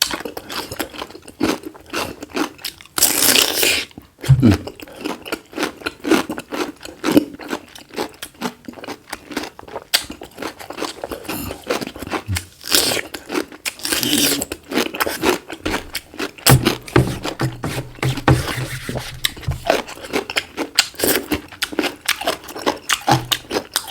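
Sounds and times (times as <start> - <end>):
close-up chewing: 19.2 - 23.9.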